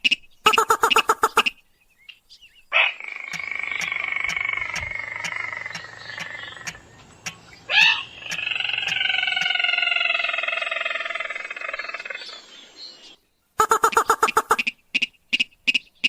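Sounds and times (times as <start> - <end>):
faint ticking: 3.3 - 7.4
crake pulsed call: 13.6 - 14.7.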